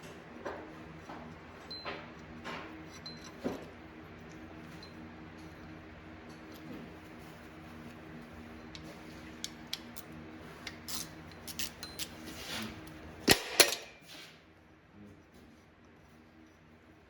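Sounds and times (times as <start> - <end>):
steady low hum: 0.0 - 17.0
metal tools clinking: 2.8 - 3.8.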